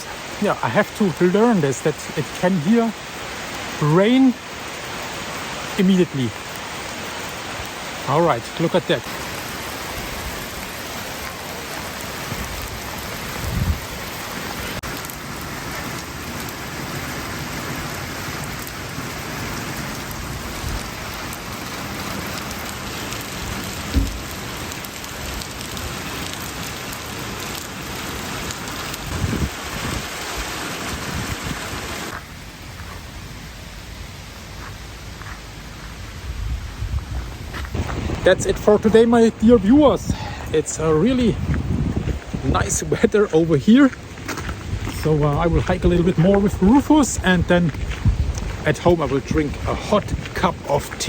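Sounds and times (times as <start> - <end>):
heavy rain falling: 0.0 - 51.0
low thumps: 23.8 - 24.6.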